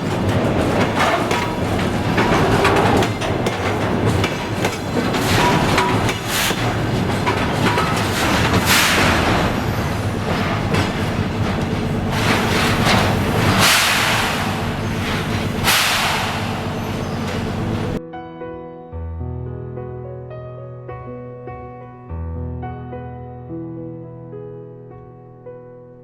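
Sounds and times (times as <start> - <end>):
retarder brakes hissing: 0.0 - 18.0
wheels rumbling on rail: 0.0 - 18.0.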